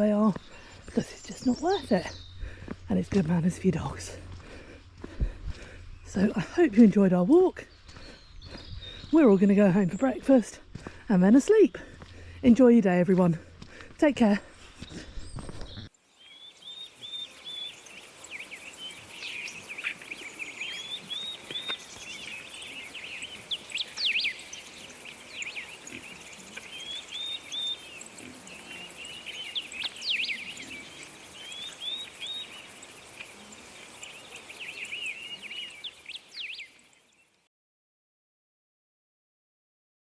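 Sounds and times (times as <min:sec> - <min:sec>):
birds singing: 0:00.0 - 0:04.4, 0:05.7 - 0:10.5, 0:14.9 - 0:37.4.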